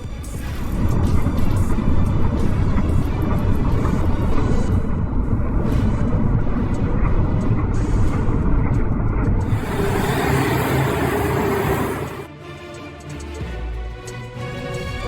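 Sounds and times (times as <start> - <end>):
steady humming tone: 1.5 - 12.3
heavy vehicle engine rumbling: 4.9 - 12.3.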